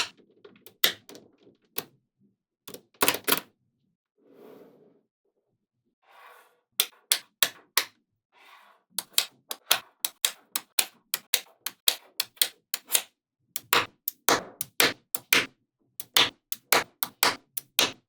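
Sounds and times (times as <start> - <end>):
magnetic balls clicking together: 9.0 - 18.0.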